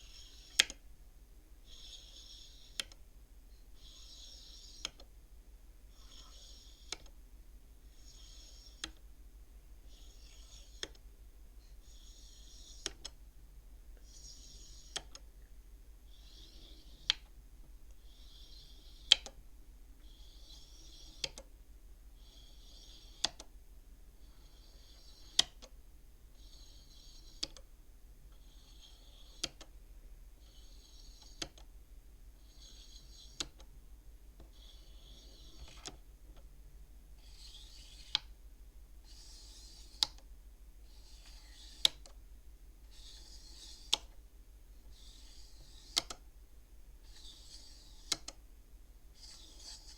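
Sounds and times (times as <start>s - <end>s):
abacus beads sliding and clicking: 0.0s - 0.8s, 1.6s - 5.2s, 5.9s - 7.2s, 7.8s - 9.1s, 9.8s - 11.1s, 11.7s - 13.2s, 14.0s - 15.3s, 16.1s - 19.4s, 20.0s - 21.5s, 22.2s - 23.6s, 24.2s - 29.8s, 30.4s - 33.8s, 34.4s - 36.5s, 37.1s - 38.4s, 39.0s - 42.2s, 42.8s - 44.2s, 44.8s - 46.3s, 47.0s - 48.5s, 49.1s - 49.9s.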